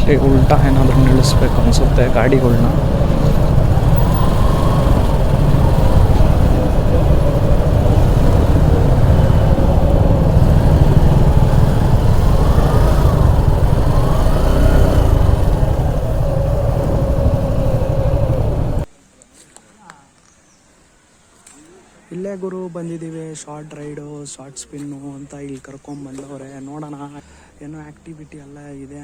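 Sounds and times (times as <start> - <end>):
motorcycle engine: 0.0 - 18.9
wind buffeting microphone: 0.0 - 18.9.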